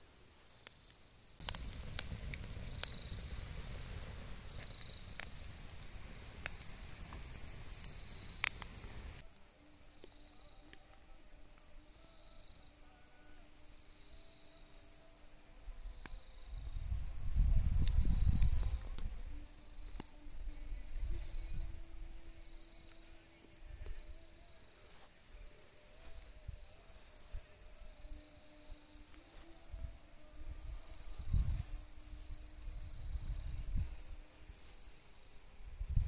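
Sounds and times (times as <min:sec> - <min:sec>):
insects chirring: 0:00.0 - 0:36.0
campfire crackling and popping: 0:00.6 - 0:09.2.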